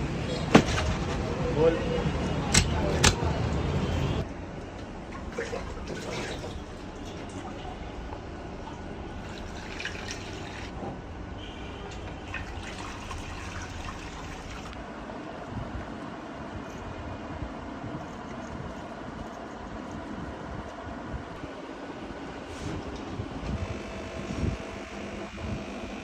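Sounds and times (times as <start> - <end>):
liquid trickling and dripping: 5.1 - 10.7, 11.9 - 14.8.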